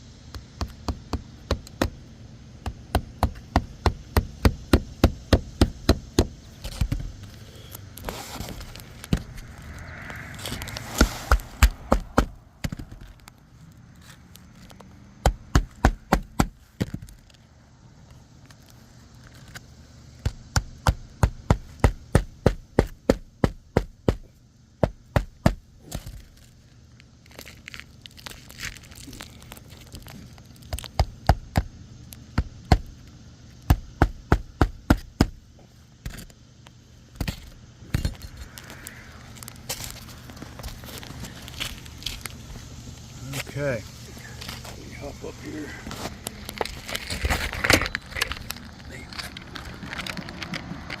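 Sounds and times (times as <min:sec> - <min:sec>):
hammer blows on roof: 0:15.2 - 0:17.0, 0:20.2 - 0:25.6.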